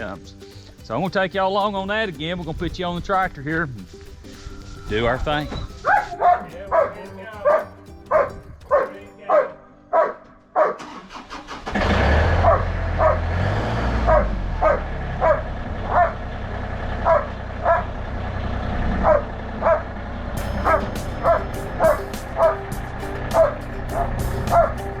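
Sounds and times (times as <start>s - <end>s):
tractor engine rumbling: 0.0s - 9.0s, 10.6s - 25.0s
dog barking: 5.8s - 10.9s, 12.4s - 13.3s, 14.0s - 16.2s, 17.0s - 17.9s, 19.0s - 19.9s, 20.6s - 22.6s, 23.3s - 24.8s.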